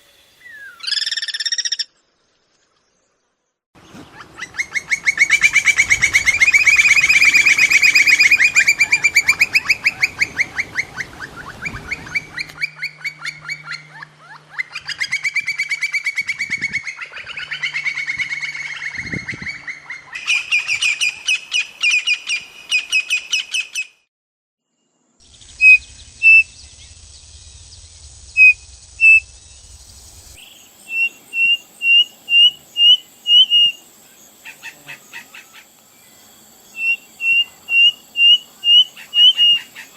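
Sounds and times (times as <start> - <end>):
bird chattering trills: 4.2 - 21.2, 25.3 - 35.7, 36.7 - 39.9
bird sharp whistled notes: 25.4 - 27.0, 28.3 - 33.8.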